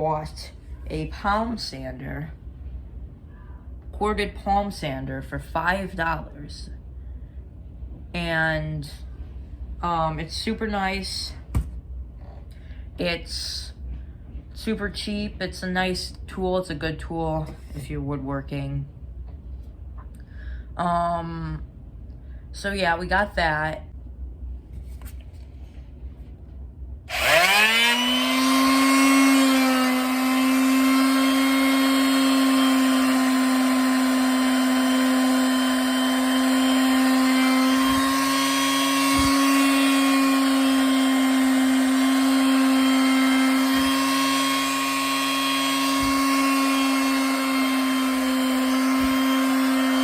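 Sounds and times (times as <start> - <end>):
electric sander humming: 27.1 - 50.0.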